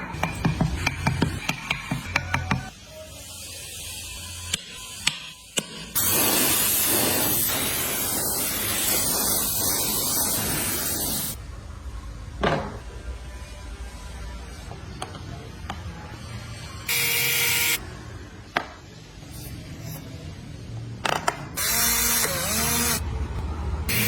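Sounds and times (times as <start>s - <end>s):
loud spraying hiss: 6.0s - 11.4s.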